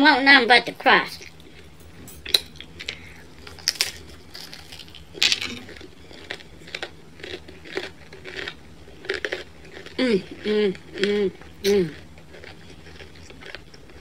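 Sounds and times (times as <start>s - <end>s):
crunching and chewing pizza crust: 1.0s - 14.0s.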